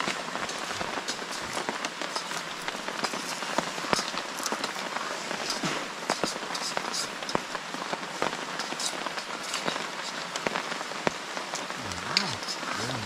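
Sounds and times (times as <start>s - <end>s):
heavy rain hissing: 0.0s - 13.0s
raindrops ticking: 0.0s - 13.0s.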